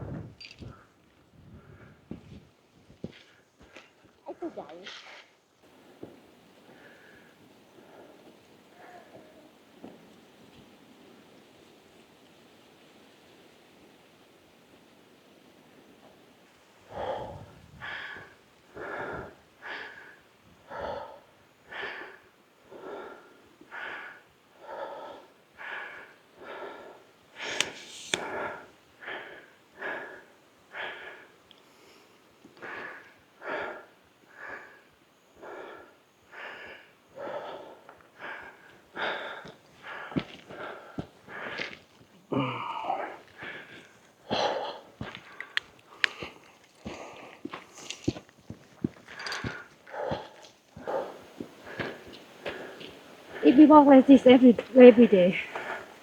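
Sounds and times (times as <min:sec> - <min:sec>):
person breathing hard: 0:16.9 - 0:48.2, 0:49.1 - 0:53.9, 0:55.4 - 0:56.0.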